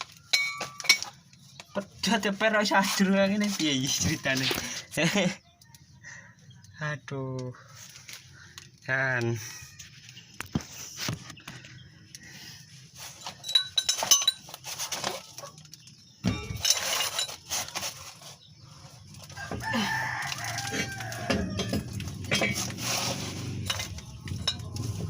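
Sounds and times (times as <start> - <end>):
rooster crowing: 19.3 - 22.2.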